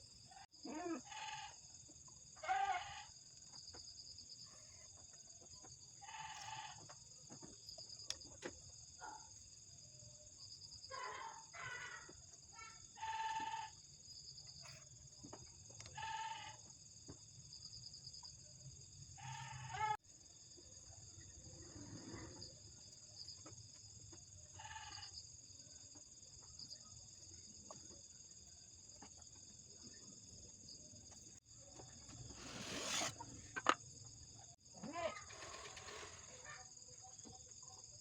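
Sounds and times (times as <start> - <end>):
insects chirring: 0.0 - 26.0, 26.6 - 38.0
farm animal calls: 2.4 - 3.1.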